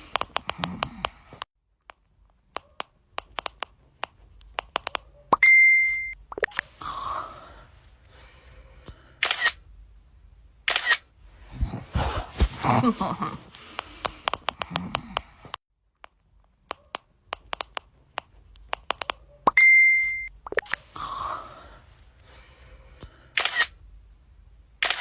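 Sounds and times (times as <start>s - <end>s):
person speaking: 0.0s - 1.4s, 11.5s - 15.6s
camera shutter clicks: 9.2s - 9.6s, 10.7s - 11.1s, 23.4s - 23.8s.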